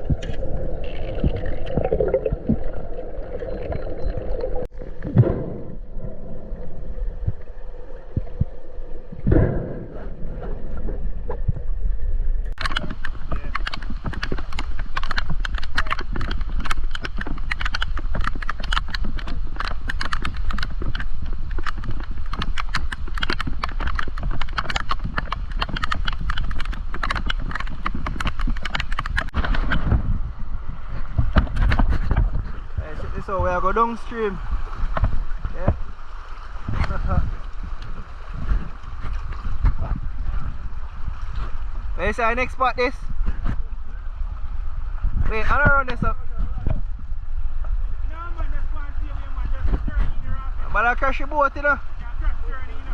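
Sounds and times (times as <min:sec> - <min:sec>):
low rumble: 0:00.0 - 0:13.5
thump: 0:05.0 - 0:05.8, 0:09.2 - 0:10.6
rapid clattering clicks and knocks: 0:12.6 - 0:29.9.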